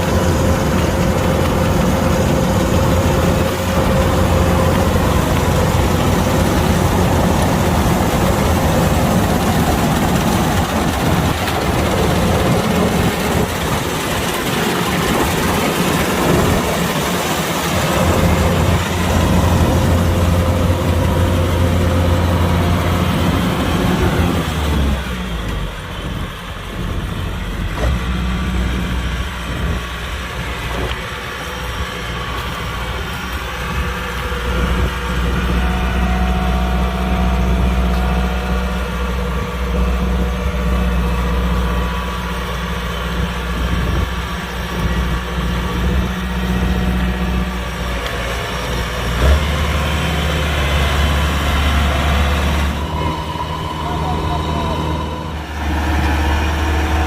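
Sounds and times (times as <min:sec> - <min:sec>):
combine harvester diesel engine: 0:00.0 - 0:57.0.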